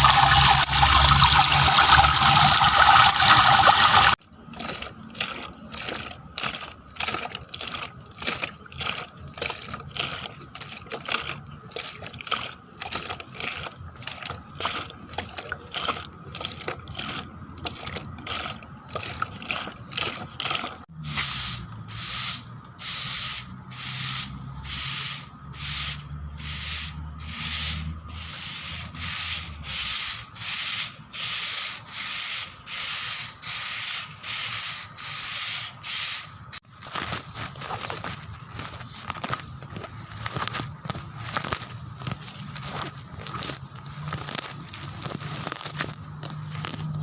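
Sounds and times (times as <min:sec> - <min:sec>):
sanding-like scraping strokes: 0:21.0 - 0:36.3.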